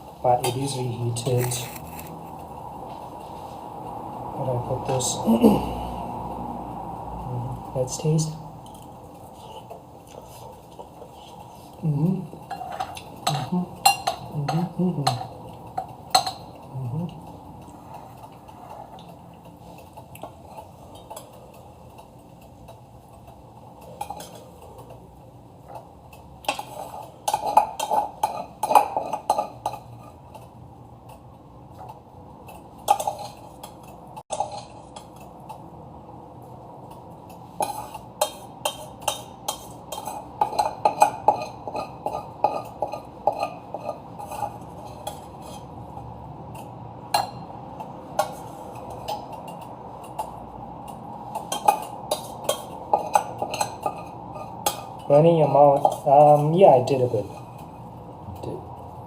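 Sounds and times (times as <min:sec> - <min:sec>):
cutlery clinking on a plate: 0:25.7 - 0:30.5, 0:31.8 - 0:35.6, 0:37.3 - 0:45.7, 0:46.5 - 0:55.1.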